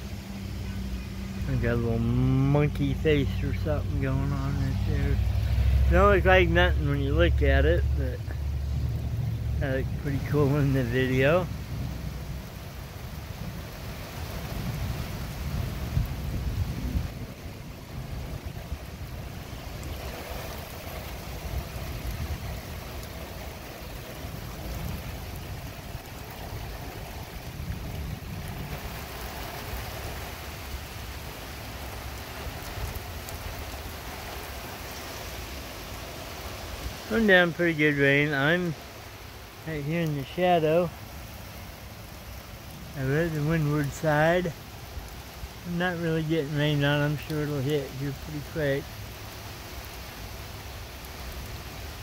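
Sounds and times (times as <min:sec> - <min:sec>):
steady rain falling: 0:00.0 - 0:52.0
wind buffeting microphone: 0:01.5 - 0:31.0.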